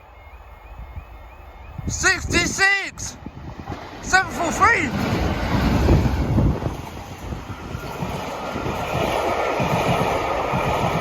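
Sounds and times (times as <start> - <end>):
train wheels clattering on rails: 3.5 - 11.0.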